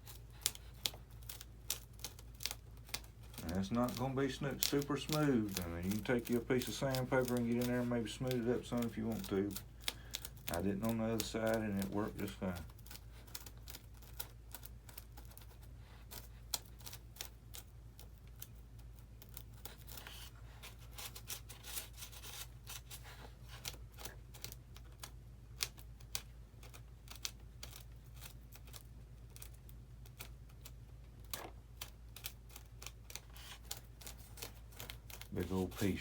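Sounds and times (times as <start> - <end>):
screwdriver scraping foam: 0.0 - 16.8
steady low hum: 0.0 - 36.0.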